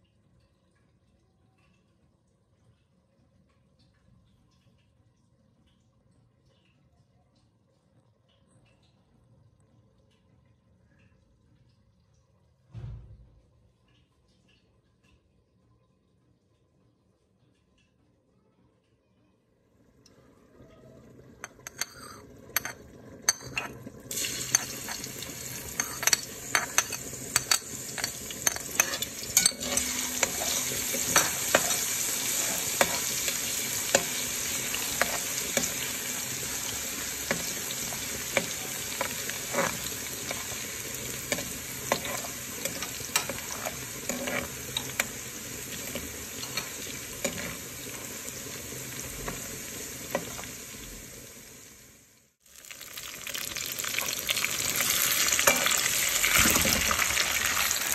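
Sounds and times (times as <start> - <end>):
ginger sizzling in oil: 21.4 - 57.9
spatula scraping a pan: 21.5 - 48.3.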